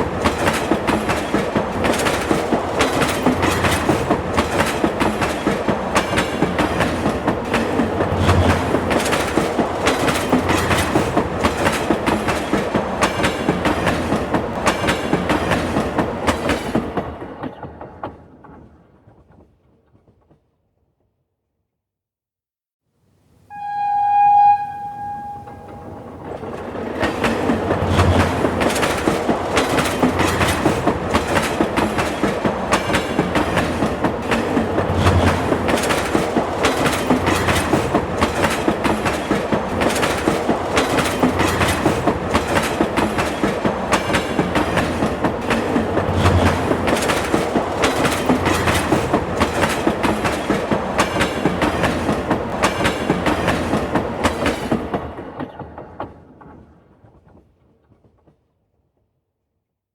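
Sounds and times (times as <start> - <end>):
train wheels clattering on rails: 0.0 - 20.4, 25.1 - 58.5
train horn blast: 23.5 - 26.2.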